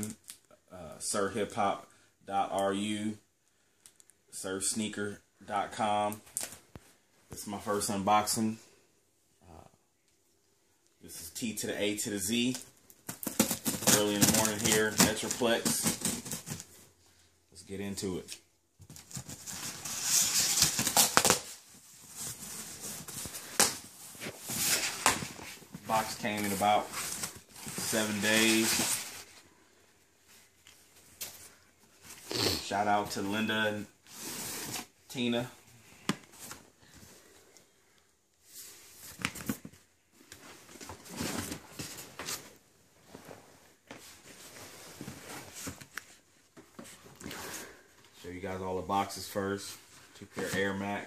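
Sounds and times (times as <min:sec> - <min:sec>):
cardboard box packaging rustling: 0:13.0 - 0:16.8, 0:18.8 - 0:29.4, 0:40.6 - 0:42.5
cardboard boxes being handled: 0:13.0 - 0:16.8.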